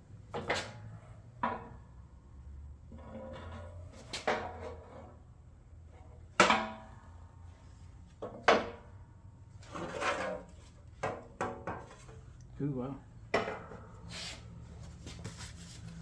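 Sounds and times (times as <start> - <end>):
workshop pieces knocking and clunking: 11.0 - 12.1.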